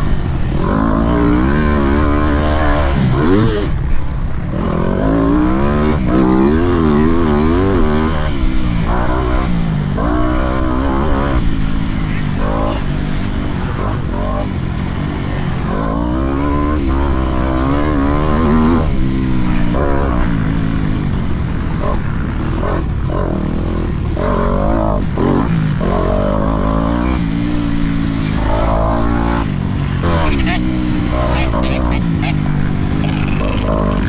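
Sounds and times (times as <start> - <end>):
motorbike engine revving hard: 0.0 - 34.0.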